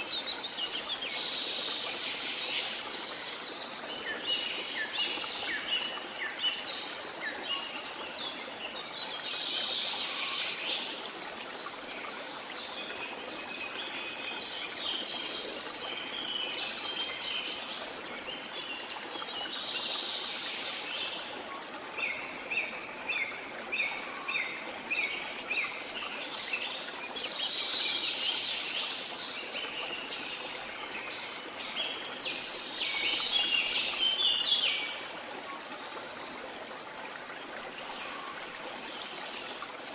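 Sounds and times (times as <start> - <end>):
birds singing and calling: 22.0 - 35.1.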